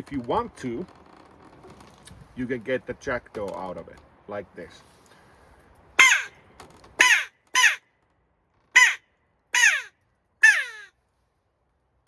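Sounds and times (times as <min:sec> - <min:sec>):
crow call imitating a jackdaw: 0:06.0 - 0:06.4, 0:07.0 - 0:07.8, 0:08.8 - 0:09.0, 0:09.6 - 0:10.9.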